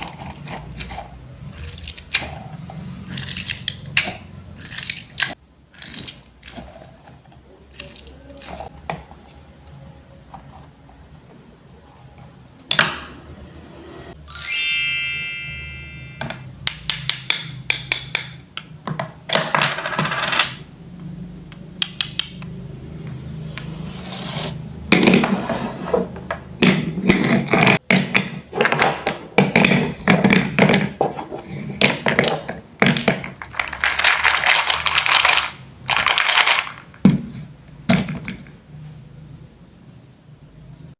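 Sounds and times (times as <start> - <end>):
wooden toy pieces clattering: 31.8 - 36.9.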